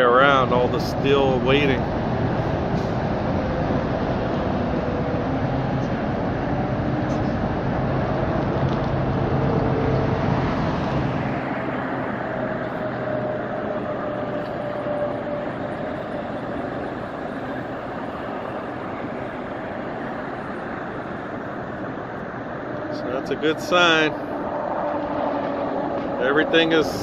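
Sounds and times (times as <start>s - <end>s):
road traffic humming: 0.0s - 27.0s.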